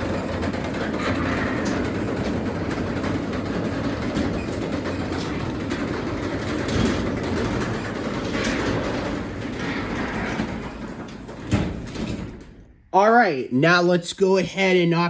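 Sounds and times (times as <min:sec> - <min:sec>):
garage door opener running: 0:00.0 - 0:12.9.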